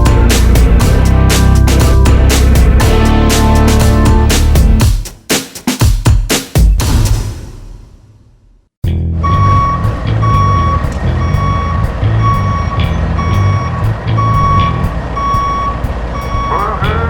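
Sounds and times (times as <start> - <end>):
diesel engine running: 0.0 - 4.8, 8.9 - 17.0
truck reversing alarm beeping: 9.2 - 17.0.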